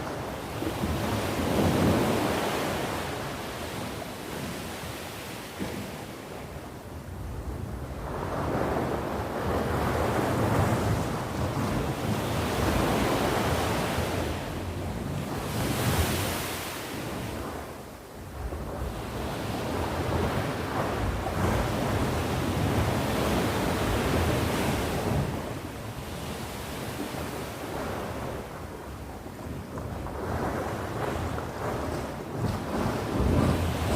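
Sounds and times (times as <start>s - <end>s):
sea waves on shore: 0.0s - 33.9s.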